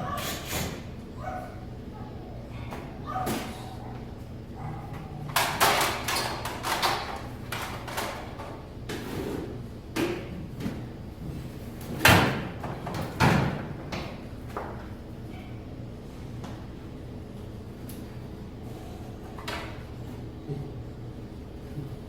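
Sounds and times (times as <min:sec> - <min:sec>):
steady low hum: 0:00.0 - 0:22.0
knocks and clatter of hard objects: 0:05.3 - 0:09.0.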